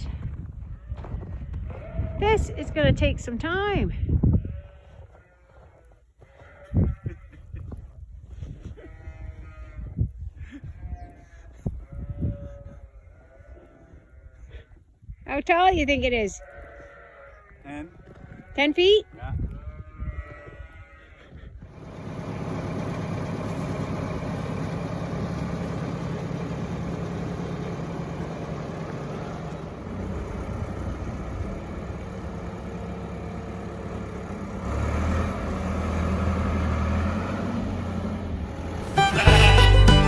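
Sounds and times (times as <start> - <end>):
tractor engine running: 21.7 - 40.0.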